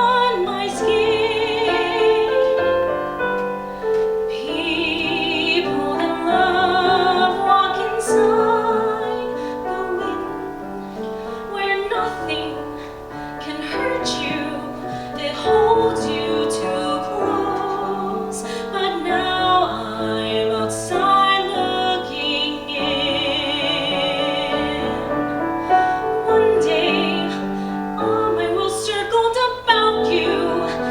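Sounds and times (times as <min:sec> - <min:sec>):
piano accompaniment: 0:00.0 - 0:30.9
woman singing a ballad: 0:00.0 - 0:30.9.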